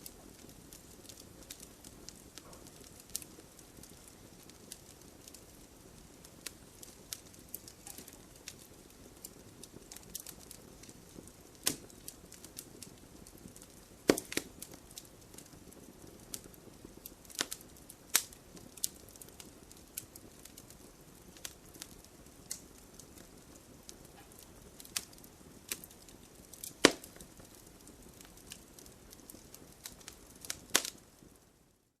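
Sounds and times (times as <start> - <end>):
campfire crackling: 0.0 - 32.0
fire popping and snapping: 0.0 - 32.0.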